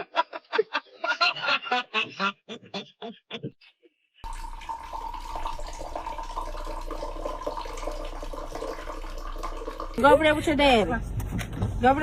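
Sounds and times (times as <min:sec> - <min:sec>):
running water rushing: 0:04.2 - 0:10.0.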